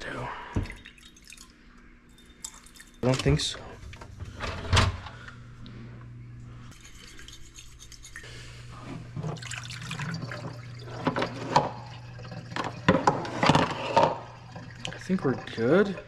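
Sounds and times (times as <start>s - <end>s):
steady low hum: 0.0s - 16.0s
liquid dripping and sloshing: 0.4s - 4.1s, 9.0s - 16.0s.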